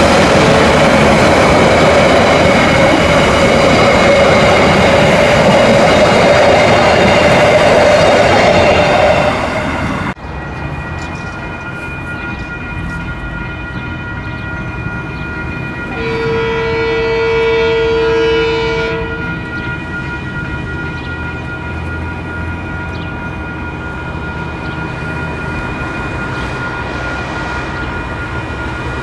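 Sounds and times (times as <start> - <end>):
distant diesel locomotives running: 0.0 - 29.0
train coaches rumbling: 0.0 - 29.0
train horn blast: 15.9 - 19.4.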